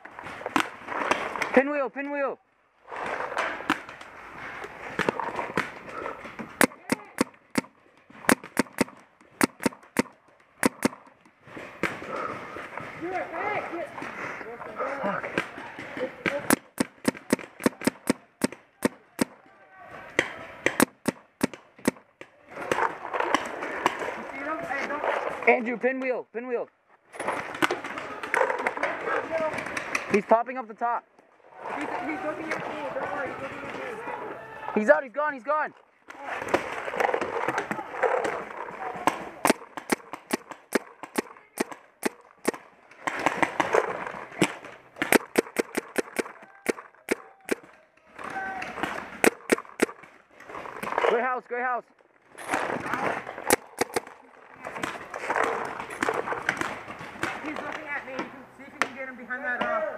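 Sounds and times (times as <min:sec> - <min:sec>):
paintball marker shots: 0:06.4 - 0:12.2, 0:16.2 - 0:19.4, 0:20.1 - 0:24.1, 0:39.0 - 0:47.8, 0:48.6 - 0:50.2, 0:52.5 - 0:57.9.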